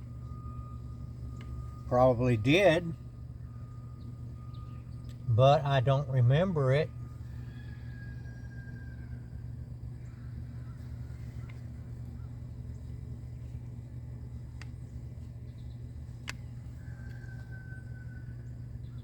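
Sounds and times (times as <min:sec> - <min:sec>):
idling engine hum: 0:00.0 - 0:19.0.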